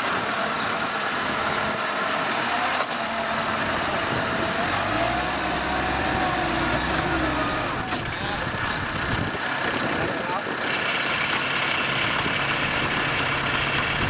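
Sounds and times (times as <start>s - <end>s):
tractor engine whine: 0.0s - 14.0s.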